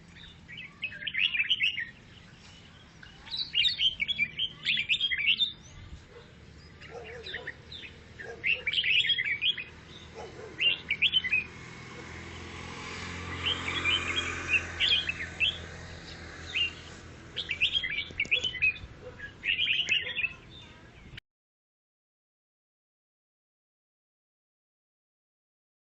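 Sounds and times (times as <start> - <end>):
bird singing chattering chirps: 0.0 - 11.6, 13.2 - 21.2.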